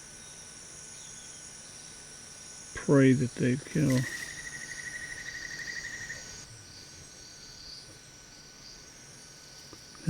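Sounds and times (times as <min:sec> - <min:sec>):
insects trilling: 0:00.0 - 0:10.0
low rapid pulsing trill: 0:02.1 - 0:09.6.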